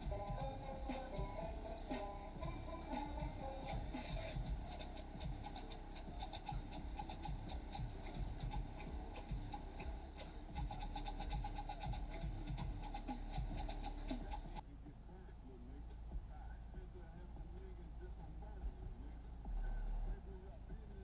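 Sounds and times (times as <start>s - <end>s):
car audio bass rumble: 0.0s - 21.0s.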